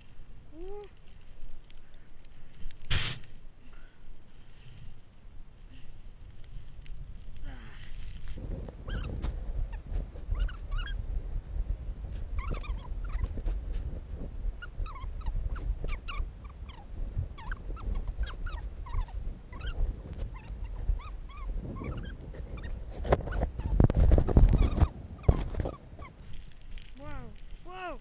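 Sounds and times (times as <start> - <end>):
wind rumbling on microphone: 0.0 - 28.0
animal whimpering calls: 8.8 - 9.1, 9.7 - 11.0, 12.2 - 13.9, 14.6 - 23.8.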